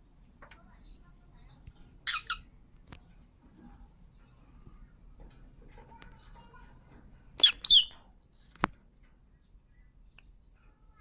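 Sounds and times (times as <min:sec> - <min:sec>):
shrill parrot calls: 0:02.1 - 0:02.4, 0:07.4 - 0:08.0.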